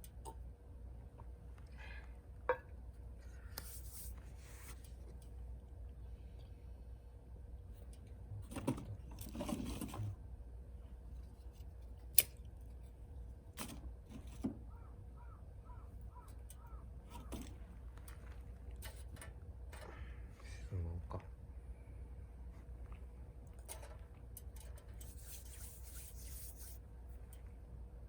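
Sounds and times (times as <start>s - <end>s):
steady low hum: 0.0s - 28.0s
bird calling: 14.6s - 17.3s.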